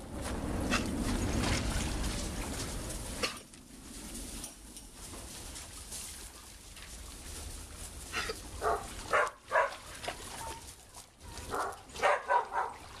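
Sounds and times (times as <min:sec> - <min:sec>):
dog barking: 0:08.6 - 0:09.8, 0:11.5 - 0:12.8.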